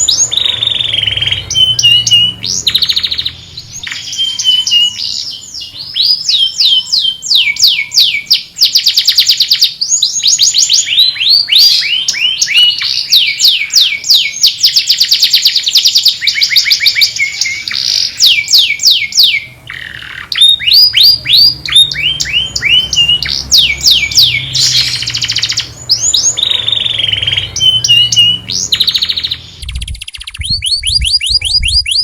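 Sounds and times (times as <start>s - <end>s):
canary singing: 0.0s - 32.0s.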